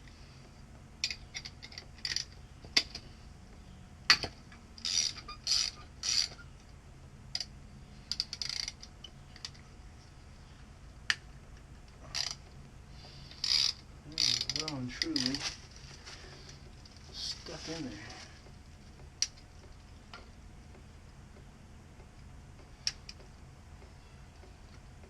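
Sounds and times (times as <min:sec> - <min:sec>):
scraping or ratcheting: 0:01.0 - 0:02.4, 0:04.8 - 0:06.4, 0:08.1 - 0:09.6, 0:12.0 - 0:12.5, 0:13.2 - 0:15.6.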